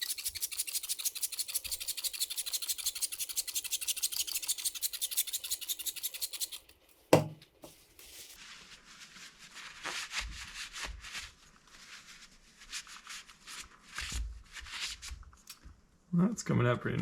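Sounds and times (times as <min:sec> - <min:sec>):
sharp knock: 0:07.2 - 0:07.4.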